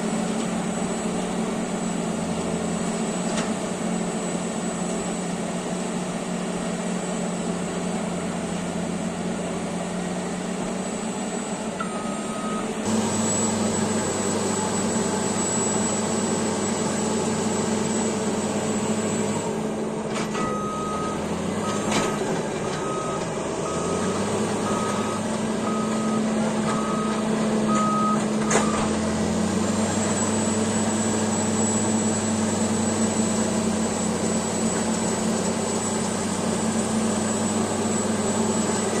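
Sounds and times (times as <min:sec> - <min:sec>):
bulldozer diesel engine running: 0:00.0 - 0:39.0
backup alarm beeping: 0:11.8 - 0:13.7, 0:20.3 - 0:28.9.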